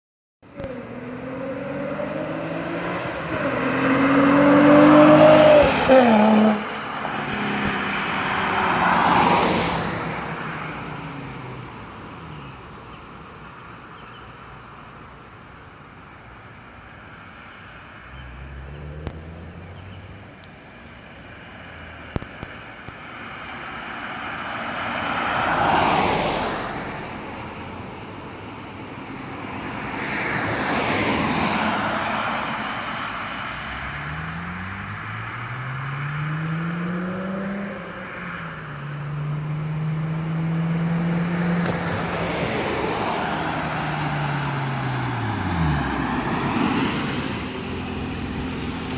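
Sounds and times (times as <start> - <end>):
vehicle passing: 0.6 - 12.6, 18.0 - 20.3, 23.2 - 28.3, 29.2 - 48.9
car engine revving hard: 0.7 - 9.8, 33.8 - 38.0, 39.0 - 48.9.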